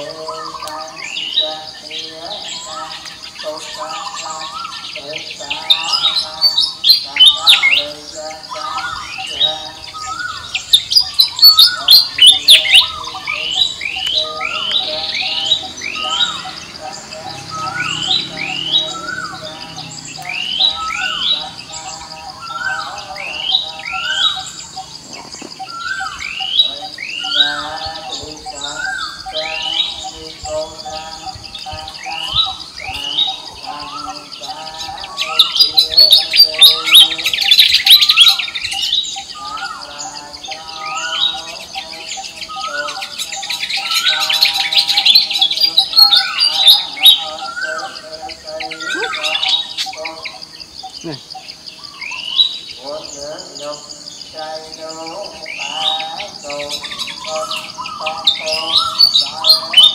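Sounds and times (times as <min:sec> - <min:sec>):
steady high drone: 0:00.0 - 0:37.5
birds chirping: 0:00.0 - 0:59.9
birds squawking and chattering: 0:00.0 - 0:59.9.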